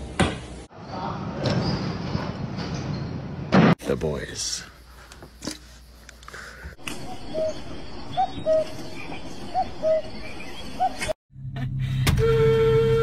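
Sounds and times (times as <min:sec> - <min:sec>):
outdoor hiss: 0:03.8 - 0:07.0.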